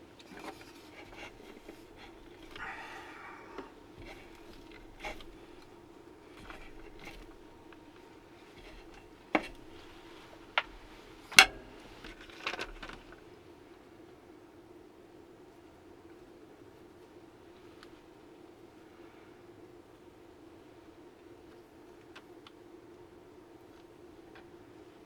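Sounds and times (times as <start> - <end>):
steady low hum: 0.0 - 21.8
tableware clicking and knocking: 11.3 - 11.9.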